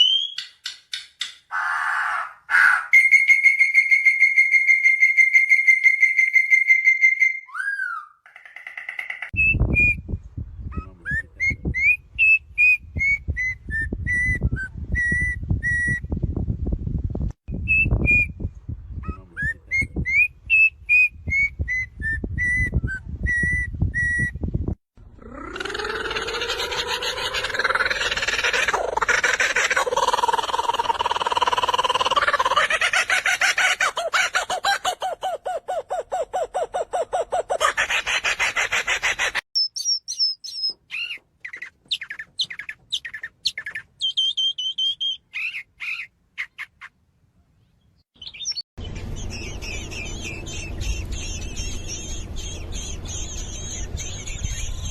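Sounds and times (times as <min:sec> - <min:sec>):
bird whistling rising notes: 0:00.0 - 0:00.6, 0:02.7 - 0:08.2, 0:11.4 - 0:16.1, 0:20.1 - 0:24.4, 0:48.2 - 0:54.9
bird high trill: 0:48.2 - 0:54.9
low rumble: 0:48.8 - 0:54.9.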